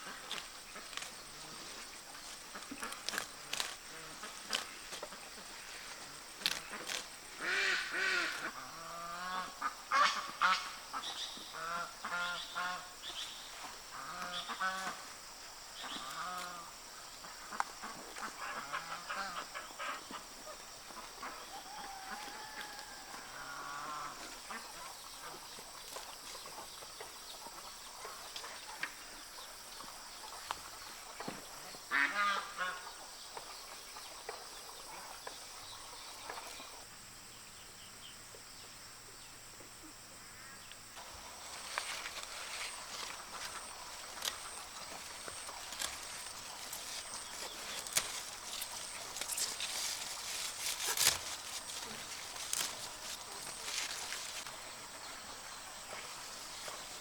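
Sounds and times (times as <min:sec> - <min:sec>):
poultry calling: 0:06.8 - 0:12.9, 0:21.0 - 0:24.9, 0:31.9 - 0:32.9.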